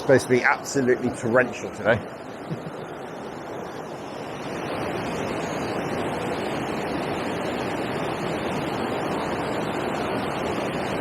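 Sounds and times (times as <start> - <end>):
flowing river water: 0.0 - 11.0.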